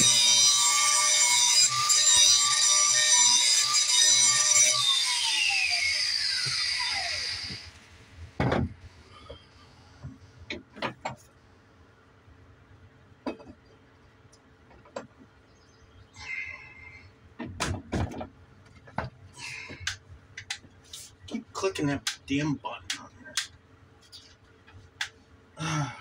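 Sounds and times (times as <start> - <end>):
grinder on steel blade: 0.0 - 7.8
grinder spinning down: 0.0 - 7.9
knocks and clanks: 8.4 - 8.8, 17.4 - 19.2.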